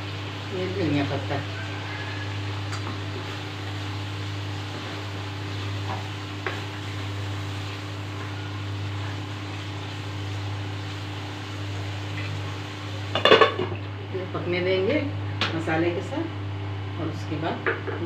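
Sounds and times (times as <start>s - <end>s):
curry gravy sizzling: 0.0s - 14.0s
steady low hum: 0.0s - 18.0s.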